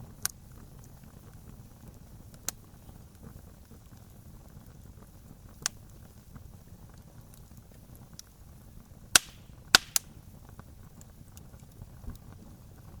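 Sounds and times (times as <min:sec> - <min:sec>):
campfire rumble and hiss: 0:00.0 - 0:13.0
wood popping and snapping: 0:09.2 - 0:10.1.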